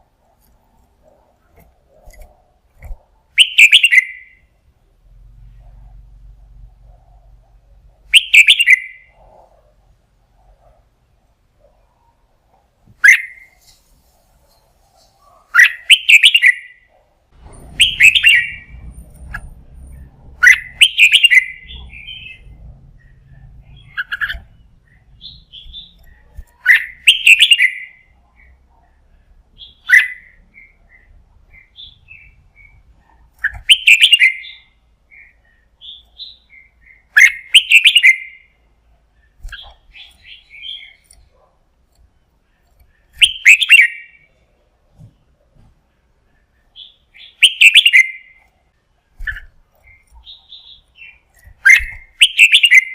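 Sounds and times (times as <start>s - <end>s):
bulbul singing whistled phrases: 3.4s - 4.5s, 8.1s - 9.2s, 13.0s - 13.6s, 15.6s - 16.9s, 17.7s - 18.9s, 20.4s - 28.5s, 29.6s - 32.8s, 33.4s - 38.6s, 43.1s - 44.3s, 46.8s - 48.4s, 49.2s - 52.9s.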